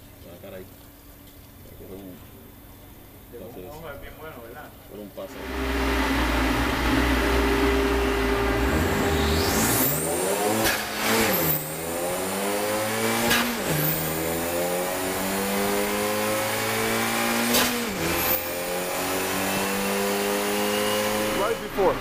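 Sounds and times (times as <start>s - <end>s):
car engine revving through gears: 5.3s - 22.0s.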